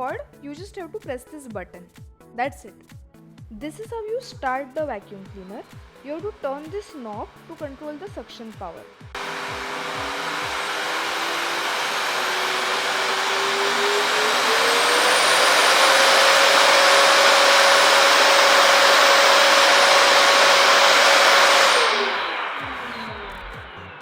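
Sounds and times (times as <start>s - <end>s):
vacuum cleaner motor whine: 9.1s - 24.0s.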